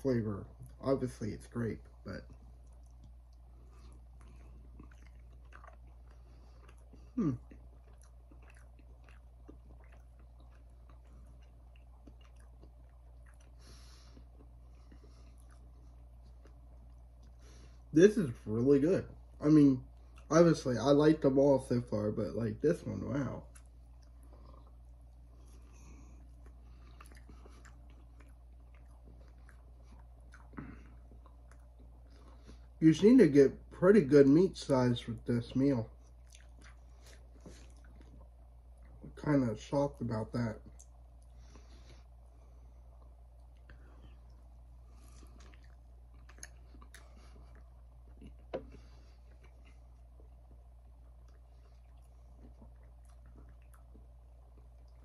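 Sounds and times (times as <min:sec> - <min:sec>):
person chewing: 0:01.9 - 0:17.9, 0:23.1 - 0:32.8, 0:35.9 - 0:39.2, 0:40.6 - 0:55.0.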